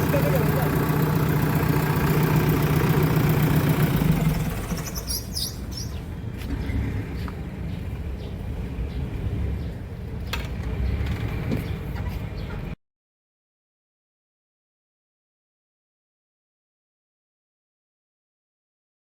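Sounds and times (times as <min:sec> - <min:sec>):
diesel engine idling: 0:00.0 - 0:06.4
birds chirping: 0:03.7 - 0:12.8.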